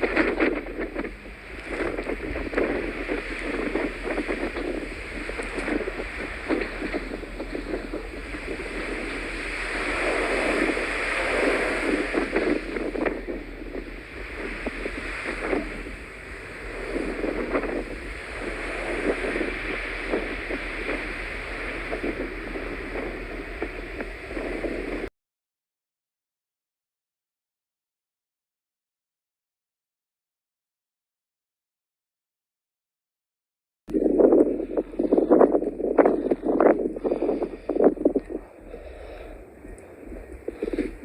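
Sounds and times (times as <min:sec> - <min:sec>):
blizzard wind gusting on microphone: 0:00.0 - 0:25.1, 0:33.9 - 0:41.0.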